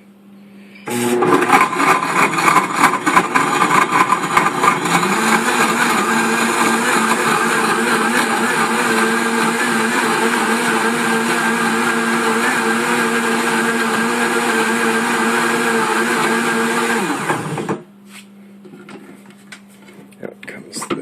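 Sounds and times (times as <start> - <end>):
blender motor whine: 0.9 - 17.8
ice rattling in blender: 1.1 - 17.3.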